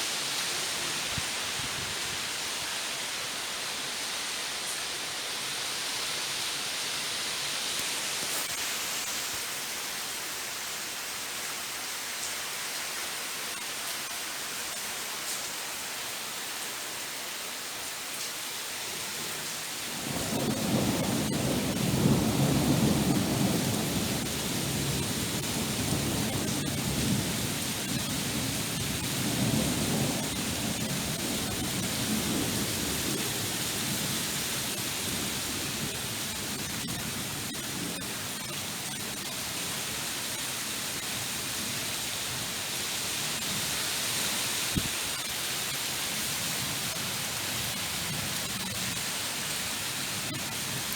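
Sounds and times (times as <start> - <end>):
rain falling: 0.0 - 50.9
thunder rumbling: 19.9 - 37.0.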